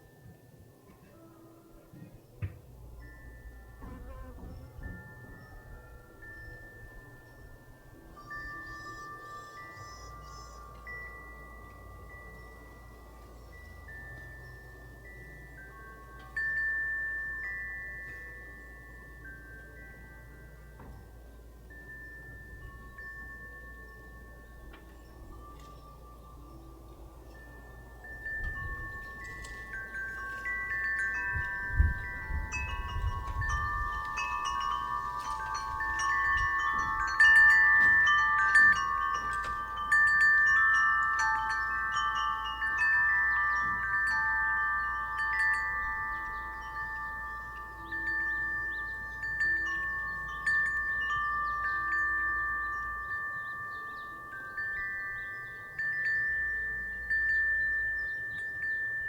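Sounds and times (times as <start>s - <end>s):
wind chime ringing: 0.0s - 59.0s
wind rumbling on microphone: 20.9s - 59.0s.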